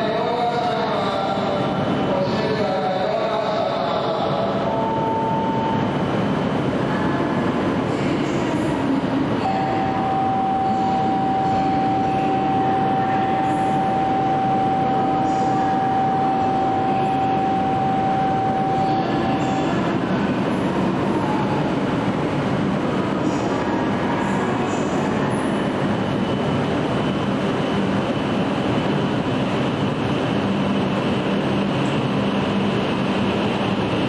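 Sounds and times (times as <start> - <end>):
steady high tone: 0.3 - 7.2, 9.3 - 22.0.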